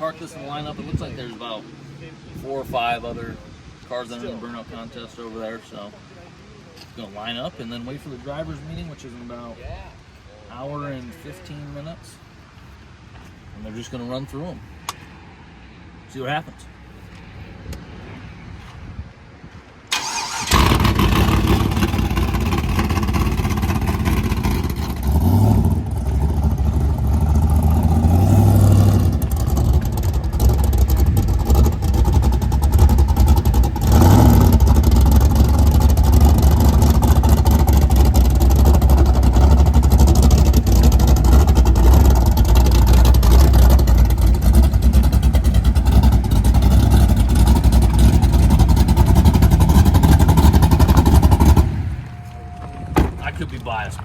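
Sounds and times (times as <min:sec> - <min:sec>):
truck engine starting and idling: 0:19.8 - 0:54.0.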